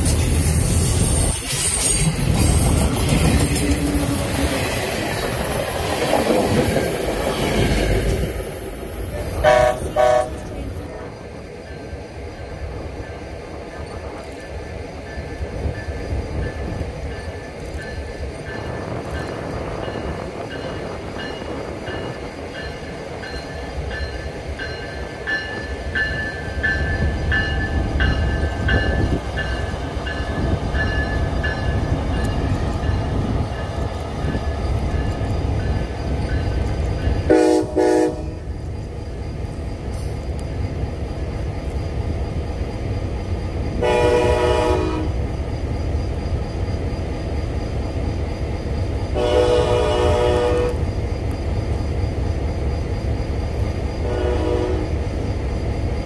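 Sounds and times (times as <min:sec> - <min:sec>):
train wheels rumbling on rails: 0:00.0 - 0:56.0
train air horn blasts: 0:09.4 - 0:10.6, 0:37.3 - 0:38.4, 0:43.8 - 0:45.2, 0:49.2 - 0:50.8, 0:54.0 - 0:54.9.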